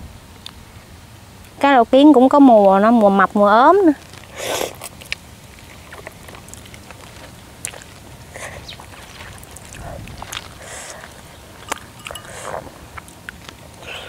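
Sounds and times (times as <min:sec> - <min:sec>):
chewing: 0:04.0 - 0:14.0.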